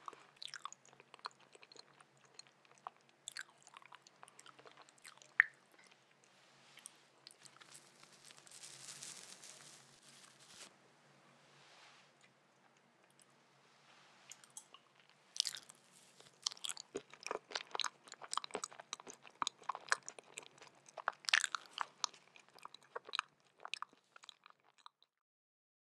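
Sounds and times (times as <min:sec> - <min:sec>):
chewing with crackly clicks: 0:00.0 - 0:06.3, 0:14.3 - 0:25.2.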